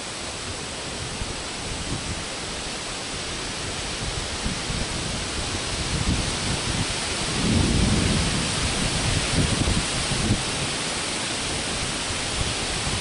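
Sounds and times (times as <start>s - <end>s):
heavy rain hissing: 0.0s - 13.0s
thunder rumbling: 4.0s - 13.0s.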